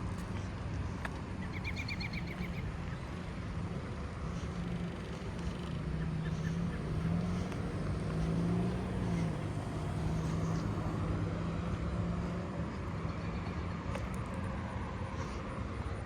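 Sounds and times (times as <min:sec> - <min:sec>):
car engine running at low speed: 0:00.0 - 0:16.0.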